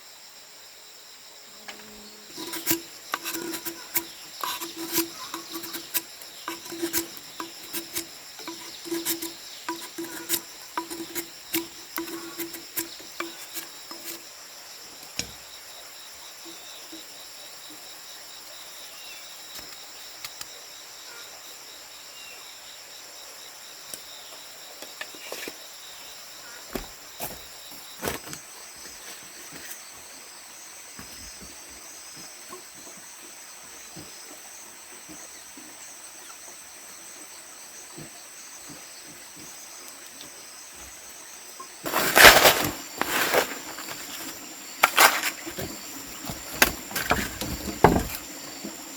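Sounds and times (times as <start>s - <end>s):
crickets trilling: 0.0s - 48.9s
soft knocks and rustles: 41.9s - 48.8s.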